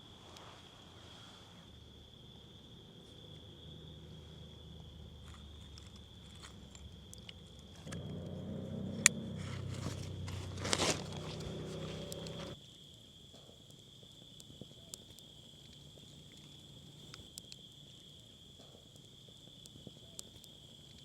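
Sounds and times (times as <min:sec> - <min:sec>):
insect chirring: 0:03.2 - 0:21.0
rustling and handling noise: 0:09.4 - 0:12.6.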